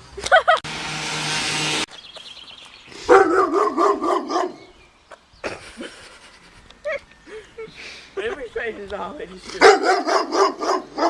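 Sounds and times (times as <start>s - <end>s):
dog barking: 3.1s - 4.7s, 9.6s - 11.0s.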